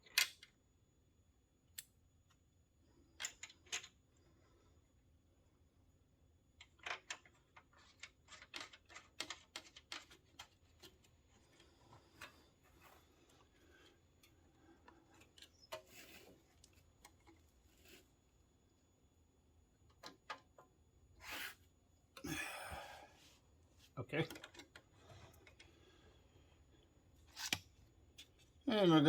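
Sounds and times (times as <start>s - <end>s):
small parts clicking and tapping: 0.0s - 0.6s, 1.6s - 2.4s, 3.1s - 4.1s, 6.5s - 17.4s, 24.2s - 25.8s.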